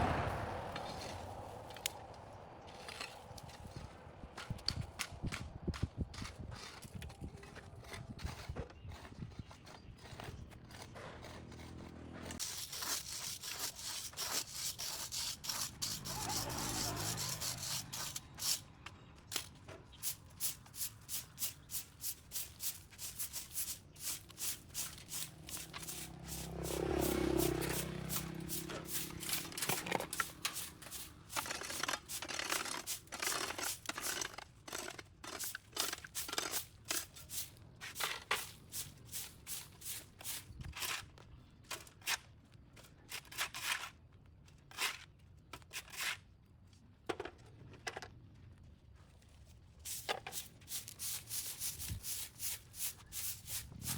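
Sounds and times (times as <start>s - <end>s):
hand tool scraping dirt off sidewalk: 0.0s - 2.0s, 2.6s - 46.4s, 49.8s - 53.9s
passing engine: 0.0s - 4.3s, 25.0s - 31.4s, 53.2s - 53.9s.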